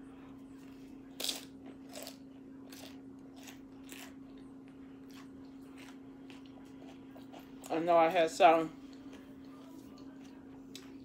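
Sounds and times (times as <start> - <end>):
chips crunching as chewed: 1.1 - 4.4, 5.0 - 7.8.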